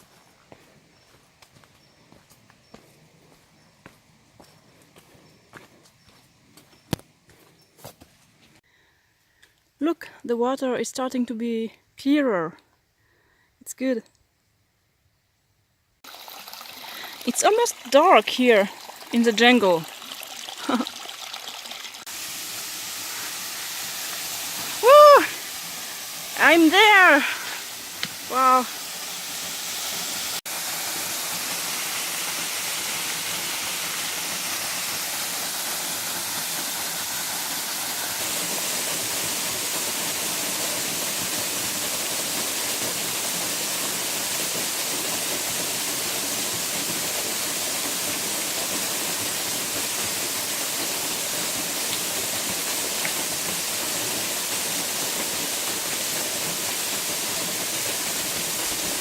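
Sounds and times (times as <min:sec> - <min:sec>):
waterfall rushing: 0:22.0 - 0:59.0.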